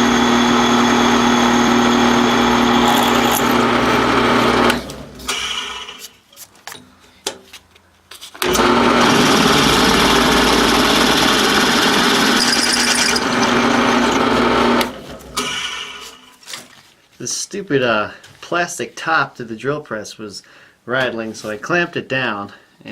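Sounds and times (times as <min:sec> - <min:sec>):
drill press running: 0:00.0 - 0:06.0, 0:08.4 - 0:16.1.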